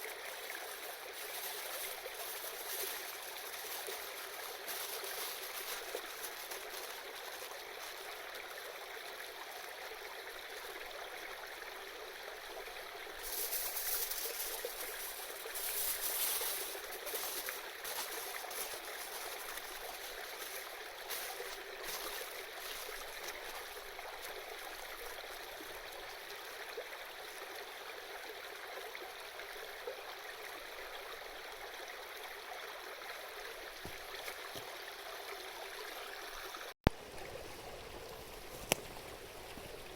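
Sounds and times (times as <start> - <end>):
river babbling: 0.0 - 29.6.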